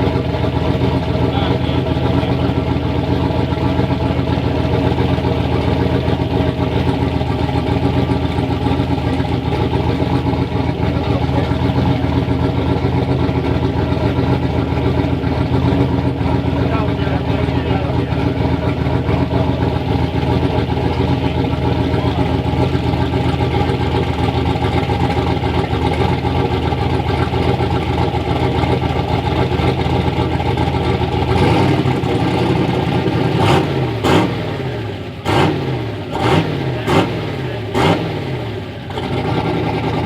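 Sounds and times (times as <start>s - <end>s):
turbocharged engine revving: 0.0s - 40.0s.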